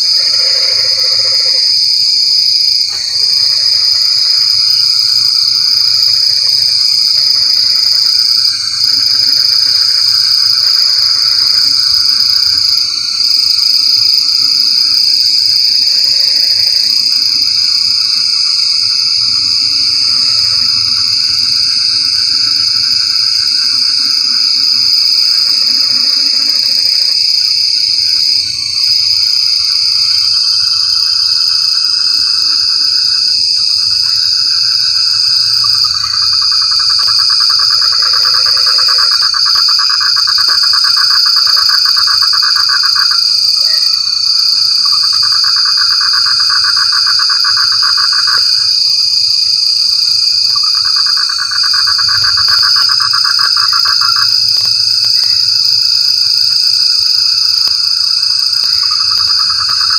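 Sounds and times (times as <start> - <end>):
frog chorus: 0.0 - 59.9.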